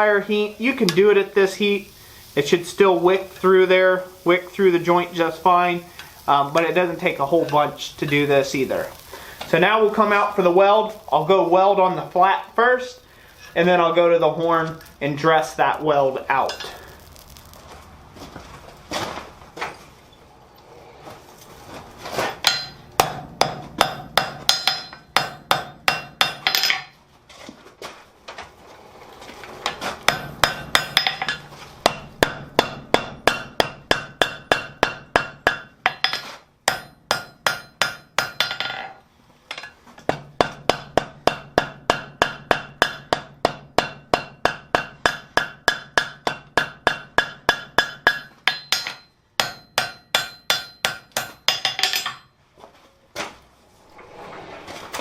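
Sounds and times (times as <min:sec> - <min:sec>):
hammer striking ringing anvil: 0:22.4 - 0:26.9, 0:30.1 - 0:38.7, 0:40.1 - 0:52.3.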